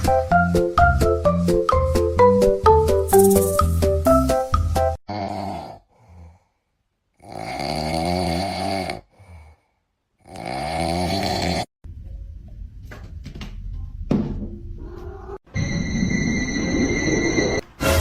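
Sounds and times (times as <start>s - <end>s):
pet snoring: 5.1s - 6.4s, 7.2s - 9.5s, 10.2s - 11.7s.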